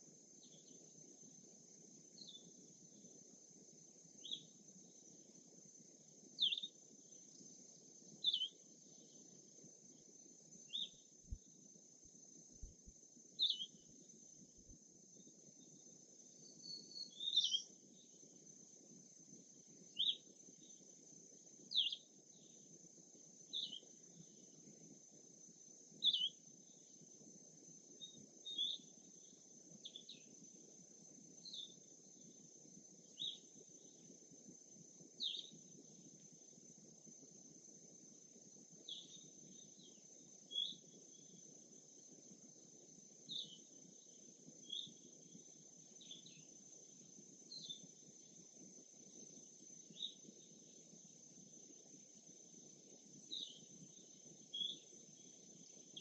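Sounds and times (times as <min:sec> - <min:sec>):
songbird chirping: 0:02.2 - 0:03.1, 0:04.1 - 0:05.4, 0:06.3 - 0:11.7, 0:12.6 - 0:14.2, 0:15.2 - 0:18.3, 0:19.7 - 0:20.9, 0:21.6 - 0:22.7, 0:23.5 - 0:24.5, 0:26.0 - 0:27.0, 0:28.0 - 0:30.4, 0:31.5 - 0:32.3, 0:33.0 - 0:34.1, 0:35.1 - 0:35.7, 0:38.8 - 0:41.4, 0:43.2 - 0:46.6, 0:49.9 - 0:50.8, 0:53.2 - 0:56.0.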